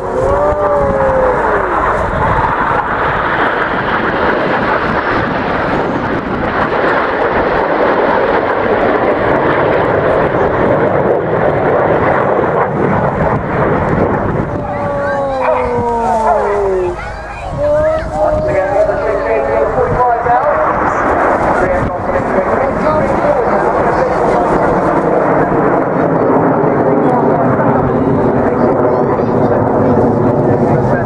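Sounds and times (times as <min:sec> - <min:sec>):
aircraft engine roar: 0:00.0 - 0:31.0.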